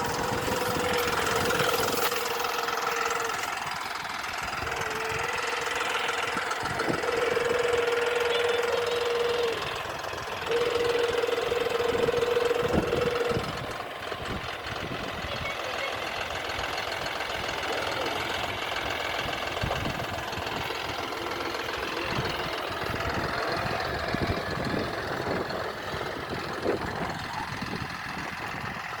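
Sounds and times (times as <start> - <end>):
steady whine: 0.0 - 14.6
tractor diesel engine running: 0.0 - 29.0.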